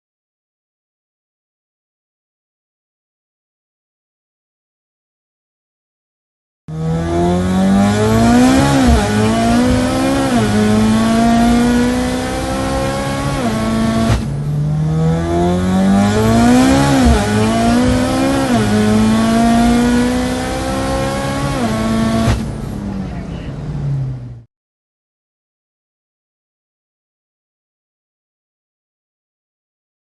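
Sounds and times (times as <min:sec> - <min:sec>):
car engine revving through upshifts: 0:06.7 - 0:24.5.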